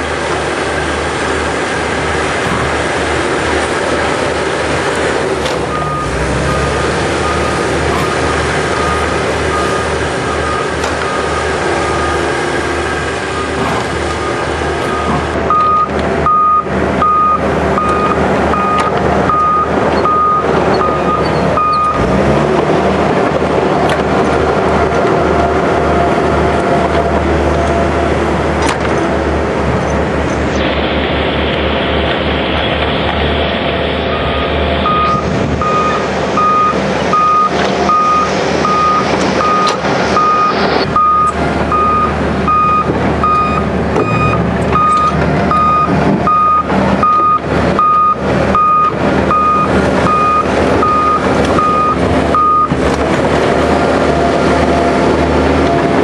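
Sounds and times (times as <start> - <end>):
heavy vehicle engine running: 0.0 - 56.0
reversing alarm beeps: 5.7 - 12.2, 13.4 - 22.0, 34.1 - 52.7.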